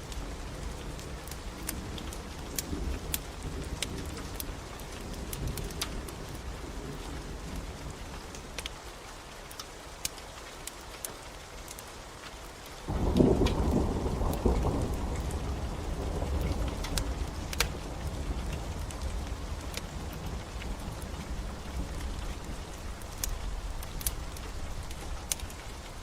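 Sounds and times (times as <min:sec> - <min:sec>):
rain falling: 0:00.0 - 0:26.0
wood fire crackling: 0:00.0 - 0:26.0
thunder rumble: 0:12.9 - 0:25.8.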